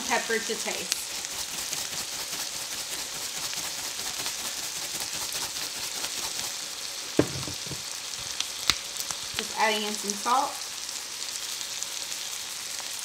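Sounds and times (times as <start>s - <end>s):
vegetables sizzling in a frying pan: 0.0s - 13.0s
knock: 7.2s - 7.9s.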